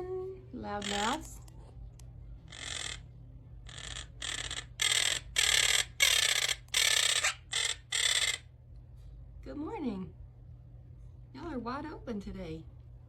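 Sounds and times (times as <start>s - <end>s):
parrots squawking: 0.7s - 1.4s, 2.5s - 8.5s.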